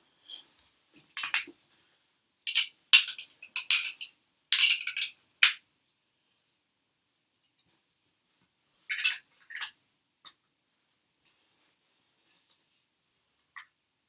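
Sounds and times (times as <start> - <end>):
plastic toy bricks clicking: 2.5 - 5.6.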